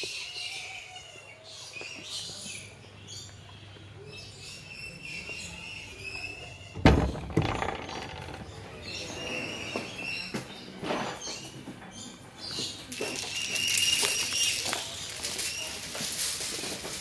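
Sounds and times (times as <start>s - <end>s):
birds chirping: 0.0s - 16.8s
loud thump: 6.8s - 8.4s.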